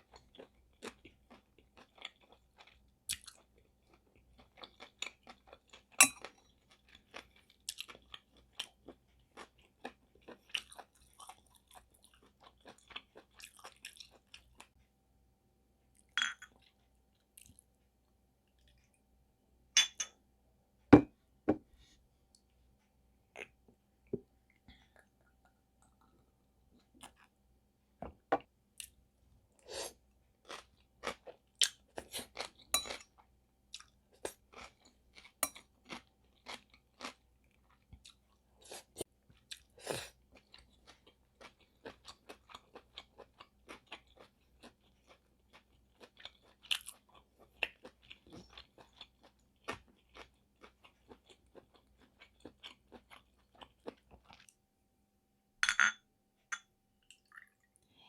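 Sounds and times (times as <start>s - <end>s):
person chewing noodles: 0.0s - 14.8s, 24.4s - 27.4s, 28.8s - 54.6s.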